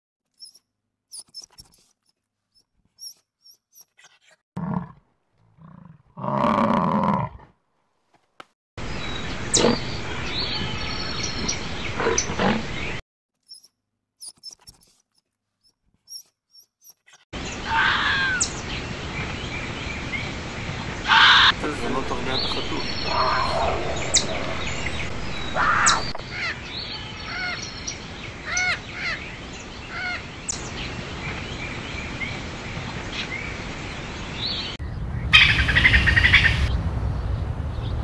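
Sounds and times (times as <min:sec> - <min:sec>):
outdoor background noise: 0:00.2 - 0:38.0
roar-like animal call: 0:04.6 - 0:07.5, 0:12.0 - 0:12.8, 0:22.9 - 0:26.2
wild animal calls: 0:21.1 - 0:21.6, 0:22.9 - 0:26.6.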